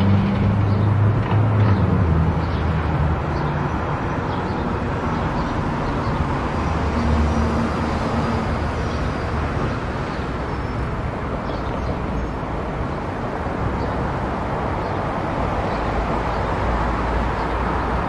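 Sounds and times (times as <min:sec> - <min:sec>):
tyre and road noise: 0:00.0 - 0:18.0.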